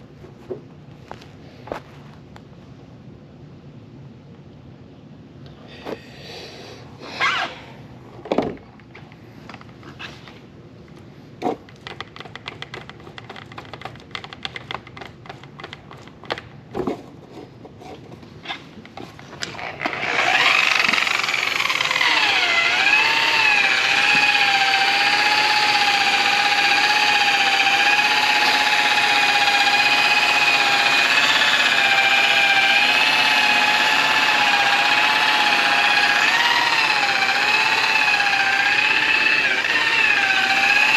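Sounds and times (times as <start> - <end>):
electric polisher whining: 19.6 - 40.9.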